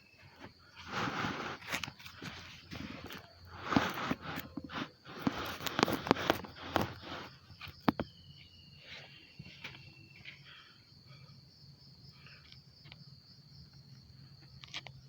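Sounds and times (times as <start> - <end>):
rough rustling: 0.0 - 11.2
high whine of insects: 0.0 - 15.0.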